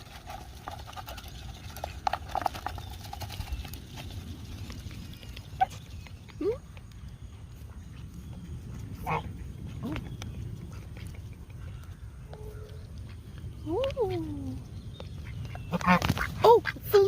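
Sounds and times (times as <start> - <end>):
ducks and geese calling: 9.0 - 9.3, 15.2 - 17.0.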